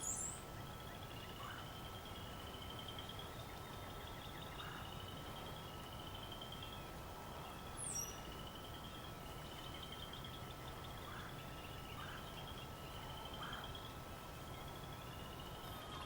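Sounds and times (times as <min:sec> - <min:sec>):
small bird trilling: 0:00.0 - 0:00.4, 0:07.7 - 0:08.9
high bird chirp: 0:00.0 - 0:15.6
distant wild turkey calls: 0:00.0 - 0:15.8.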